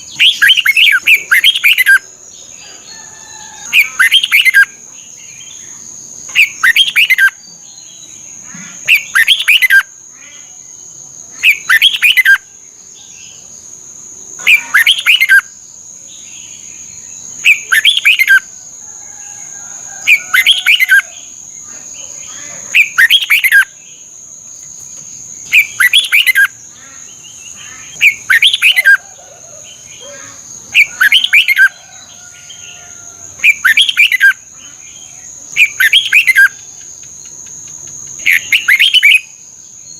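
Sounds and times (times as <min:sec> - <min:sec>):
soft bird calls: 0:00.0 - 0:07.7
bird warbling song: 0:00.0 - 0:13.5, 0:14.4 - 0:15.6, 0:16.2 - 0:18.5, 0:19.9 - 0:24.0, 0:24.6 - 0:39.9.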